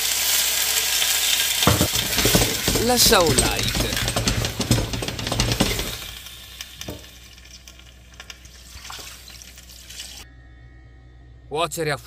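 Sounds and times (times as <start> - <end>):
food sizzling in a pot: 0.0 - 10.2
water pouring into a pot: 0.0 - 10.2
scraping and clinks: 1.7 - 6.2.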